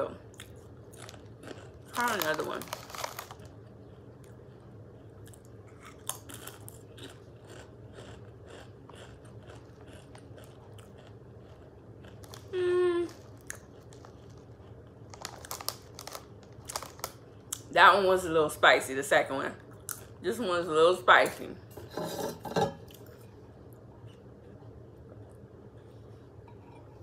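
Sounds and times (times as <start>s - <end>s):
person chewing crunchy chips: 0.3s - 17.7s
person humming: 12.5s - 13.2s.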